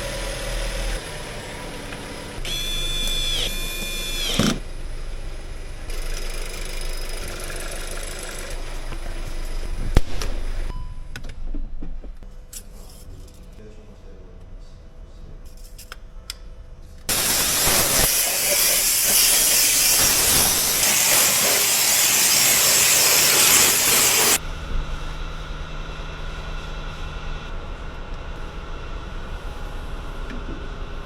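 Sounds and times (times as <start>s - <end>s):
loud steady hiss: 17.1s - 24.4s.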